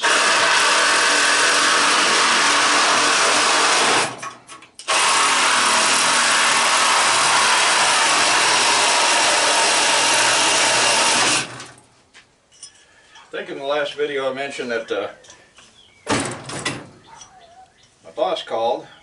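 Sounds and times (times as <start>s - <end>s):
power tool running: 0.0s - 11.7s.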